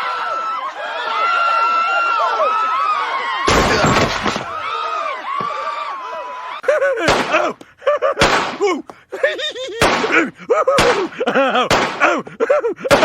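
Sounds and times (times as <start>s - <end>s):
cartoon smacks: 7.0s - 9.0s, 9.8s - 12.3s.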